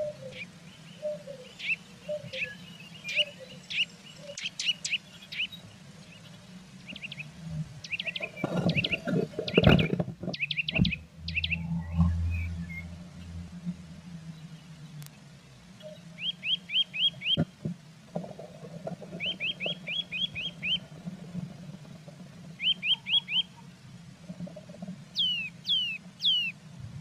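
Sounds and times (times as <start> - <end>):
downward-sweeping bird notes: 10.4 - 15.0.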